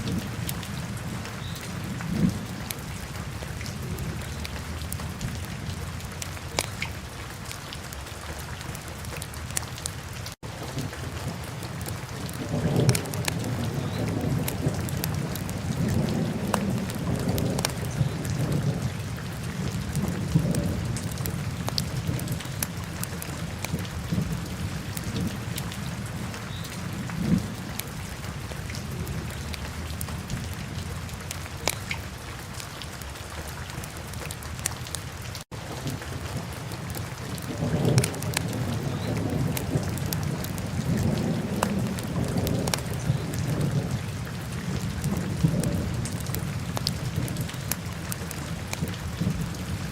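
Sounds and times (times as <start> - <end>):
wood fire crackling and popping: 6.5 - 6.8.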